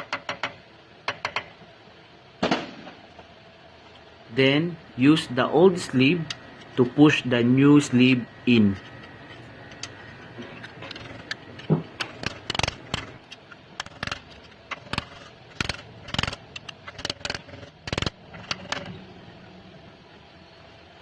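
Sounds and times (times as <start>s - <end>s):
hammer tapping on metal: 0.0s - 1.5s.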